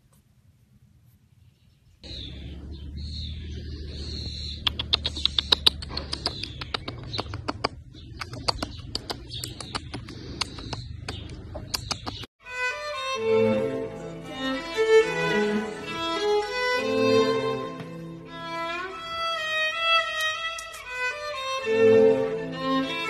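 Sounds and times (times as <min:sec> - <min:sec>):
birds chirping: 0:01.3 - 0:12.3
sharp clicks: 0:04.2 - 0:12.3, 0:20.1 - 0:21.0.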